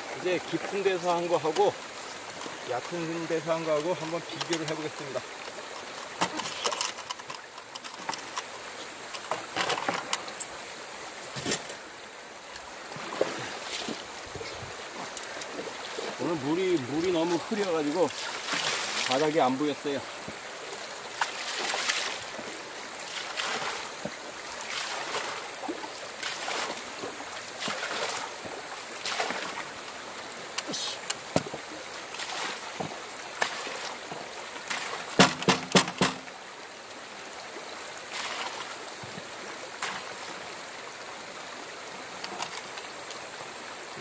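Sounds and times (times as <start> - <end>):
water splashing down sluice box: 0.0 - 10.6, 12.6 - 36.5, 38.0 - 40.3
stream flowing: 0.0 - 44.0
sharp knocks: 35.1 - 36.3.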